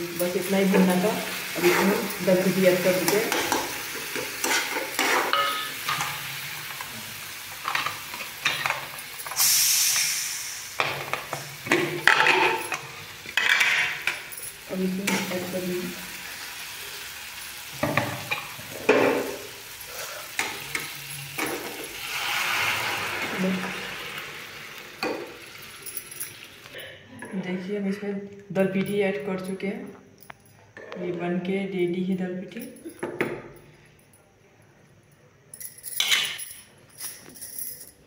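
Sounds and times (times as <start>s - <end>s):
masala sizzling: 0.0s - 26.8s
spatula scraping a pan: 1.5s - 2.2s, 3.0s - 6.2s.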